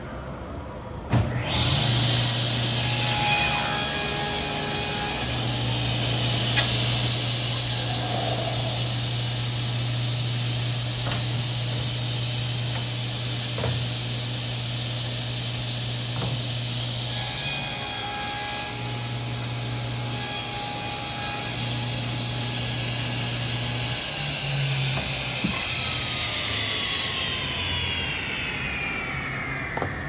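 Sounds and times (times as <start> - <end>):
table saw blade whine: 1.1 - 30.0
low motor hum: 5.2 - 17.1.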